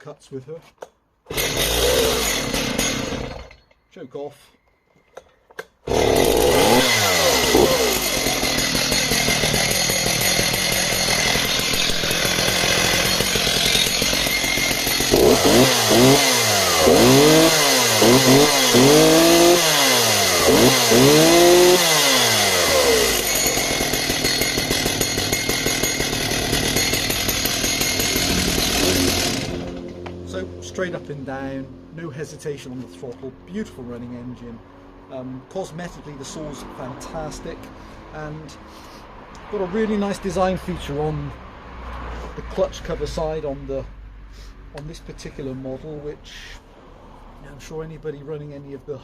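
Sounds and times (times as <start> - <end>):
chainsaw engine revving and idling: 1.3 - 3.6, 5.9 - 38.7.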